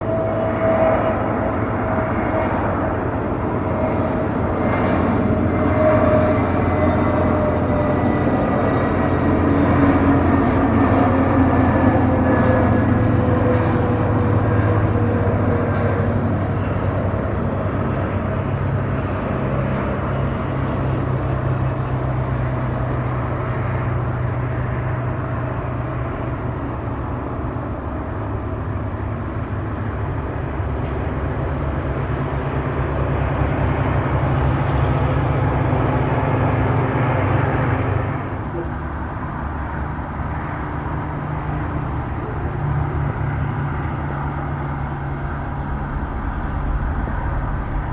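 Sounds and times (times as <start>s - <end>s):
low engine drone: 0.0s - 47.9s
outdoor noise: 0.0s - 47.9s.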